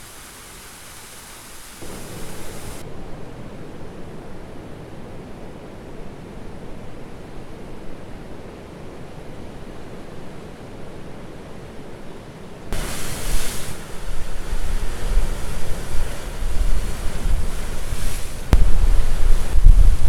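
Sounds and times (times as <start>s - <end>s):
sea surf washing on shore: 0.0s - 6.9s, 12.7s - 20.0s
wind buffeting microphone: 12.7s - 20.0s.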